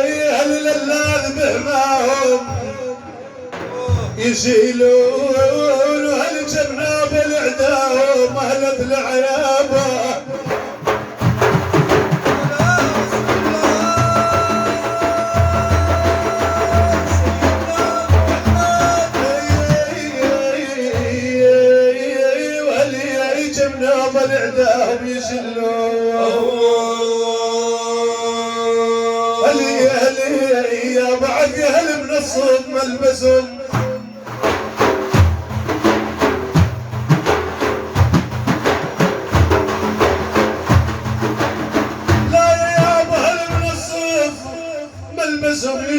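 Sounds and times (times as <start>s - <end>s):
man singing melismatic notes: 0.0s - 10.6s, 12.2s - 34.6s, 42.1s - 45.9s
drum beat: 3.5s - 21.6s, 33.7s - 44.5s.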